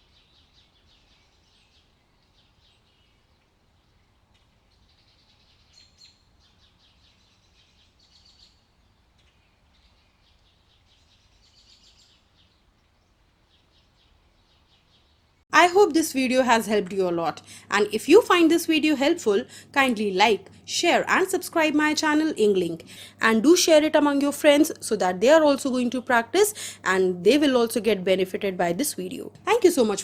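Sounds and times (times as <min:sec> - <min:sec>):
low steady hum: 0:15.5 - 0:30.0.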